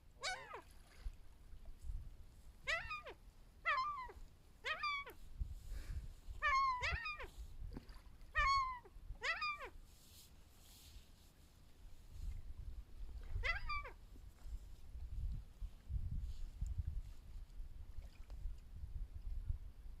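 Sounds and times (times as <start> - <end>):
gulls mewing calls: 8.4 - 9.7, 13.4 - 14.0.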